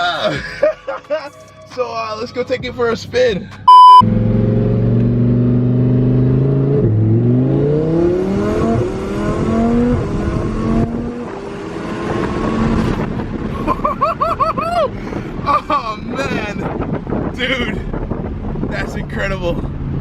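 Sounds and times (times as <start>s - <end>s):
sports car engine accelerating: 3.7s - 13.6s.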